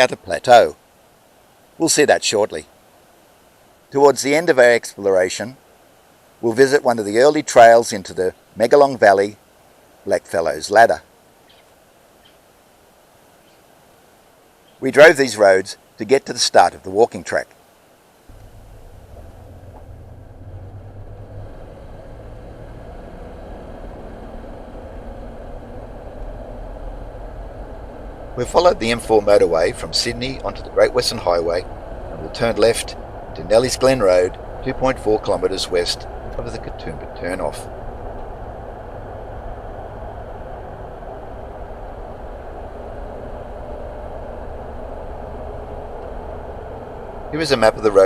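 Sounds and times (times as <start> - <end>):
car engine and tyre rumble: 18.2 - 48.0.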